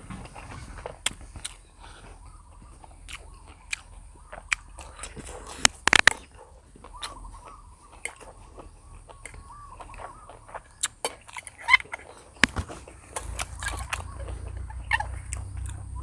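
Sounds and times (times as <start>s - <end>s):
quiet chewing: 0.0s - 16.0s
mouth and utensil clicks: 3.1s - 8.3s.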